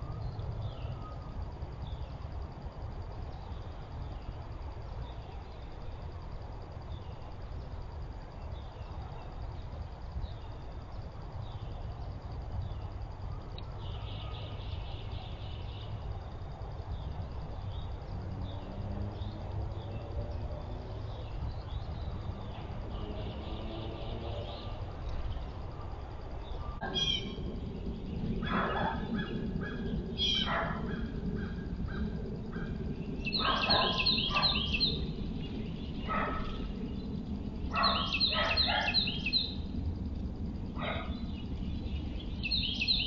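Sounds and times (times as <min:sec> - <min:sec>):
low outdoor rumble: 0:00.0 - 0:43.0
bird trills: 0:26.6 - 0:27.4, 0:32.6 - 0:35.0, 0:37.8 - 0:39.6.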